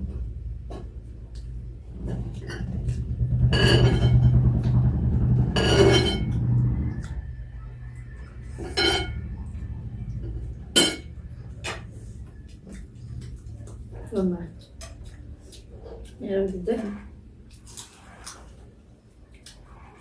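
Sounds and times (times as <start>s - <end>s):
low hum: 0.0s - 19.1s
dishes and cutlery clinking: 5.5s - 6.5s, 8.5s - 9.5s, 10.8s - 11.2s.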